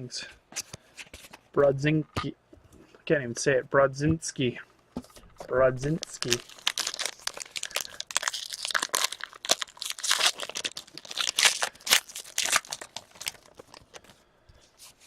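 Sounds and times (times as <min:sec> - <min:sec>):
wrapper tearing and crinkling: 0:05.9 - 0:14.0.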